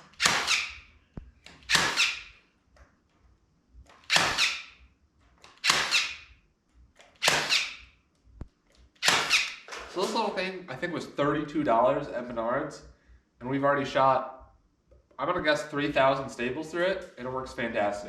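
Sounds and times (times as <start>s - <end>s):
electric staple gun shots: 0.0s - 0.8s, 1.5s - 2.3s, 4.0s - 4.8s, 5.5s - 6.3s, 7.2s - 7.8s, 9.0s - 9.8s.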